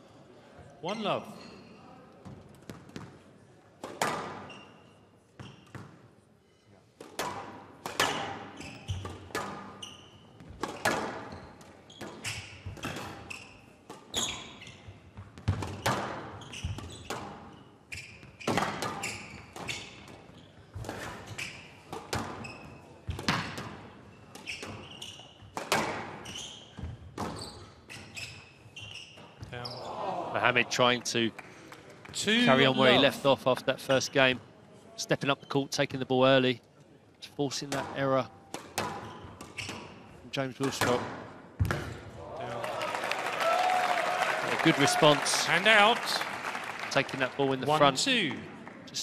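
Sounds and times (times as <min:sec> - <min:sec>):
shoe squeaks: 0:04.4 - 0:05.8, 0:08.5 - 0:23.0, 0:24.1 - 0:25.6, 0:26.2 - 0:30.0, 0:38.9 - 0:40.2
squash ball hits: 0:07.0 - 0:08.4, 0:10.5 - 0:11.2, 0:25.6 - 0:26.2, 0:40.7 - 0:42.0.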